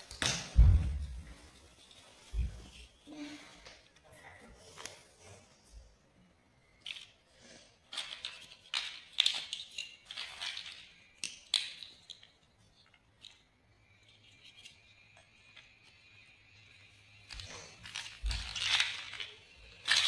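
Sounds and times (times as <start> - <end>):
plastic blocks clicking together: 6.8 - 16.1, 16.7 - 20.0.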